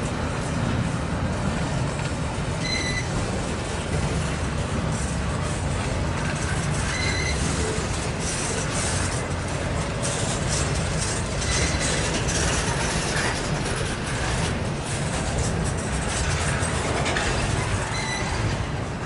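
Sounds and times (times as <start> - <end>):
train wheels rumbling and rattling: 0.0 - 19.0
high wheel squeal: 2.6 - 3.2, 6.4 - 9.0, 11.1 - 13.4, 17.5 - 18.6.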